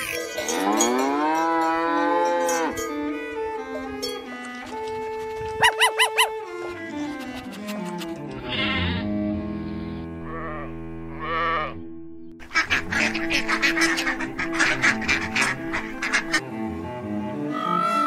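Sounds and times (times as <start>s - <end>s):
background music: 0.0s - 18.0s
ducks quacking: 5.6s - 6.4s, 12.4s - 16.5s
sheep bleating: 8.4s - 9.2s.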